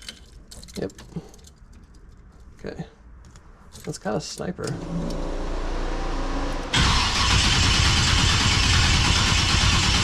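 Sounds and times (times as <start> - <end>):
starter cranking car engine: 6.7 - 10.0.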